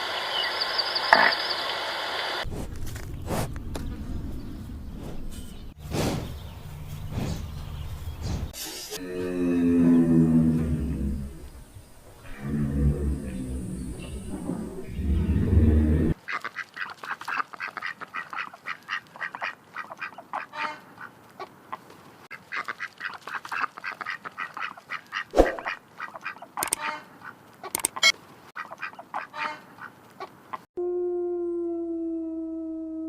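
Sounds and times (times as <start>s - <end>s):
long steady animal call: 12.2s - 16.6s.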